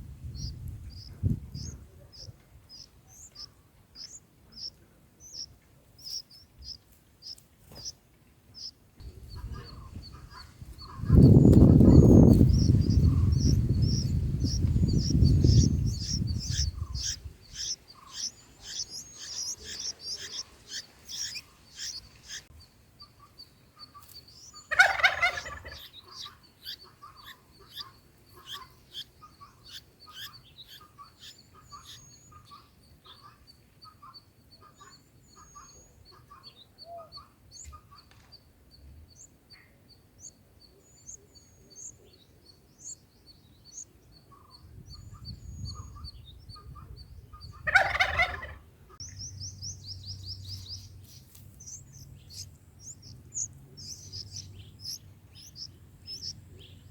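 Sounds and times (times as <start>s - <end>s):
faint peeps: 0.4s - 8.0s, 8.6s - 24.6s, 39.1s - 56.9s
nestlings cheeping: 9.3s - 22.5s, 49.0s - 56.9s.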